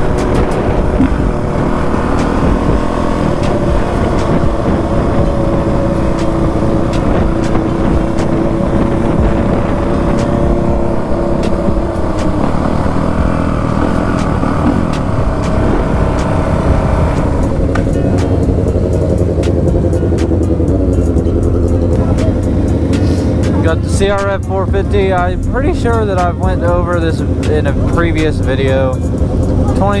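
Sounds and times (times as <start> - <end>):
wind rumble on microphone: 0.0 - 22.6
dirt bike engine running: 0.0 - 30.0.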